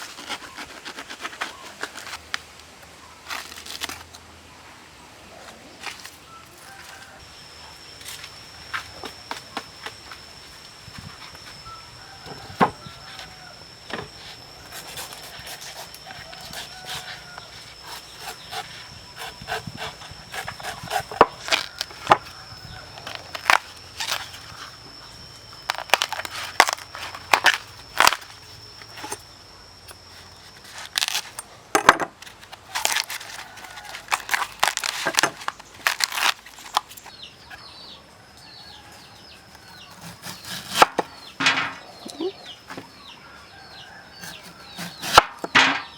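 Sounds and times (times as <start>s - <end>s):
high-pitched whine: 4.8s - 45.9s
sharp knocks and clatter: 41.4s - 41.8s.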